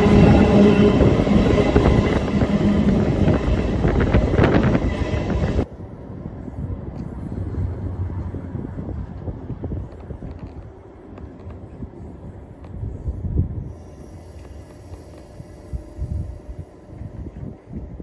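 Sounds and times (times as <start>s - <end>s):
passenger train rumbling on rails: 0.0s - 18.0s.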